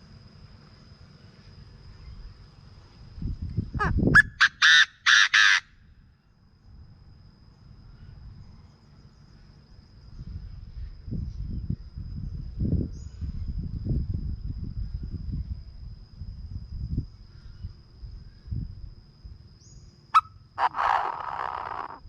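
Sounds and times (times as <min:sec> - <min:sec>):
francolin harsh call: 0:03.7 - 0:05.8, 0:19.6 - 0:22.0.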